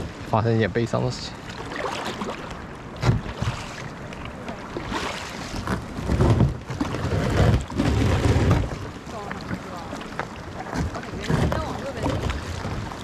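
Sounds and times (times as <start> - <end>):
kayak moving on water: 0.0 - 13.0
wind buffeting microphone: 4.3 - 13.0.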